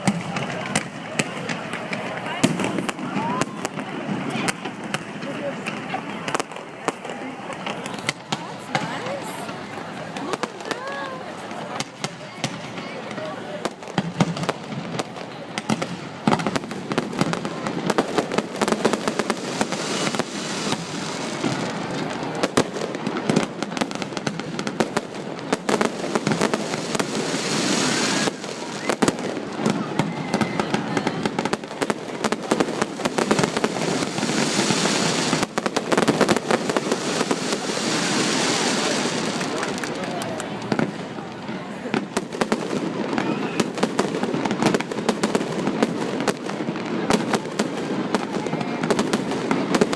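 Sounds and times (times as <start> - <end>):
fireworks bangs and crackling: 0.0 - 49.9.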